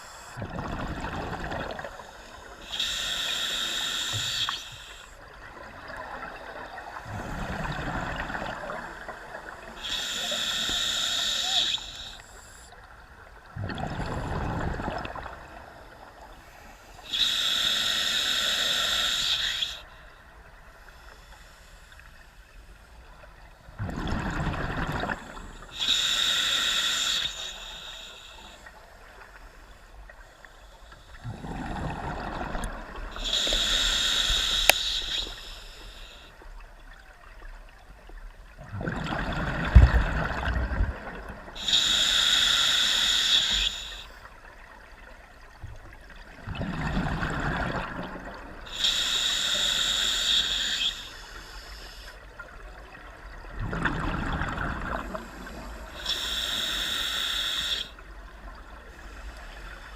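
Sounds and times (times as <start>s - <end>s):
regulator hissing inhale: 0.0s - 0.4s, 1.9s - 5.2s, 9.5s - 12.8s, 16.4s - 20.0s, 20.7s - 22.9s, 25.3s - 31.6s, 32.6s - 36.6s, 41.6s - 44.3s, 48.6s - 52.4s, 55.0s - 59.9s
bubbling exhale: 31.2s - 36.3s.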